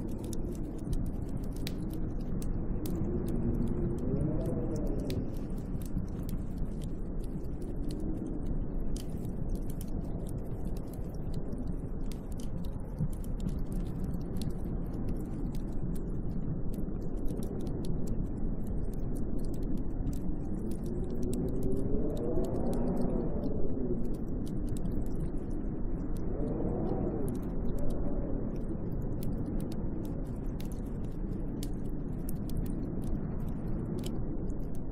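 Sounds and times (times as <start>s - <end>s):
wind gust howling: 0.0s - 11.6s, 19.5s - 30.2s
faint ticks: 0.0s - 34.9s
snowstorm wind blowing: 0.0s - 34.9s.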